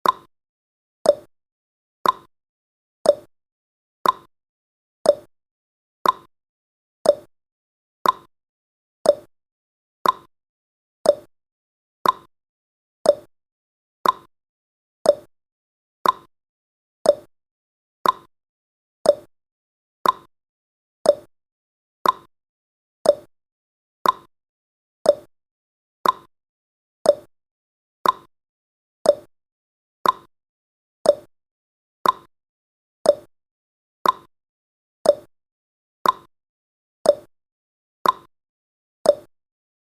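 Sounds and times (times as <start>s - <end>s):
countdown timer ticking: 5.1s - 5.3s, 7.1s - 7.3s, 9.1s - 9.3s, 10.0s - 10.3s, 11.1s - 11.3s, 13.1s - 13.3s, 15.1s - 15.3s, 17.1s - 17.3s, 18.0s - 18.3s, 19.1s - 19.3s, 21.1s - 21.3s, 23.0s - 23.3s, 25.1s - 25.3s, 26.0s - 26.3s, 27.1s - 27.3s, 28.0s - 28.3s, 29.1s - 29.3s, 30.0s - 30.3s, 31.1s - 31.3s, 32.0s - 32.3s, 33.1s - 33.3s, 34.0s - 34.3s, 35.1s - 35.3s, 36.0s - 36.3s, 37.1s - 37.3s, 38.0s - 38.3s, 39.1s - 39.3s.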